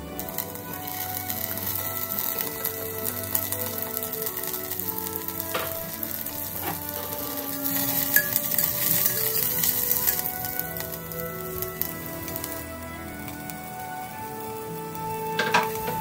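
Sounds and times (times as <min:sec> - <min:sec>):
soft background music: 0:00.0 - 0:16.0
vegetables sizzling in hot oil: 0:00.0 - 0:16.0
spatula stirring: 0:05.5 - 0:10.4.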